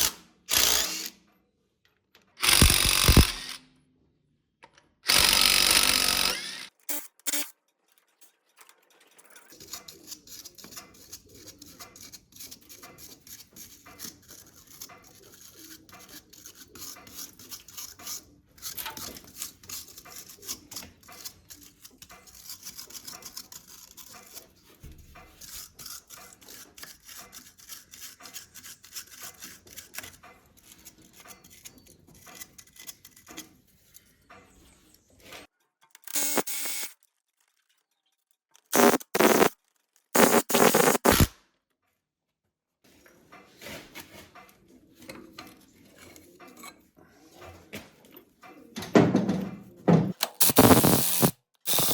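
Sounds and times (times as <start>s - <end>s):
power tool burst: 0.0s - 1.1s, 2.4s - 3.6s, 5.1s - 7.5s, 36.1s - 36.9s, 38.7s - 39.5s, 40.2s - 41.3s, 50.2s - 51.9s.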